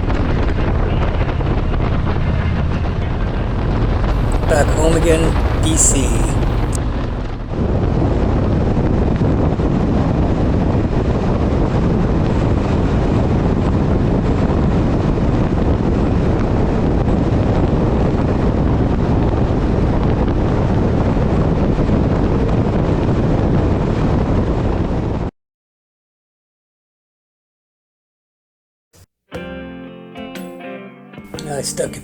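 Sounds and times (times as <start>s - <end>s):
wind rush on microphone: 0.0s - 25.3s.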